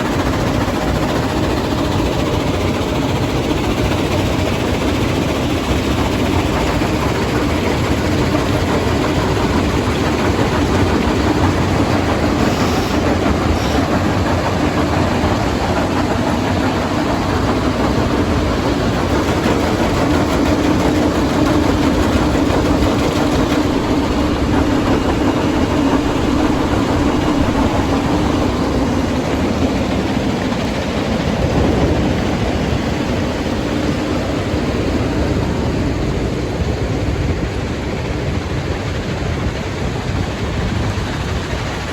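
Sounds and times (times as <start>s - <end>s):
heavy crushing machinery running: 9.4s - 30.4s.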